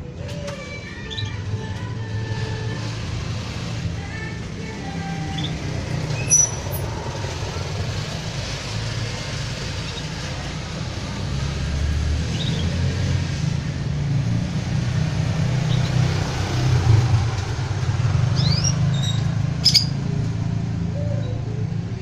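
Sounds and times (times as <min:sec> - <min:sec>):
canary chirps: 0:01.0 - 0:01.5, 0:05.3 - 0:06.9, 0:12.2 - 0:12.9, 0:15.5 - 0:16.1, 0:18.3 - 0:20.1.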